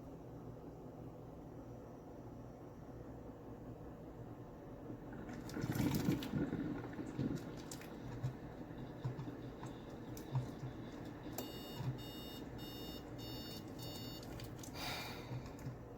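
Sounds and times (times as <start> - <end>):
short high beeps: 11.4 - 14.2.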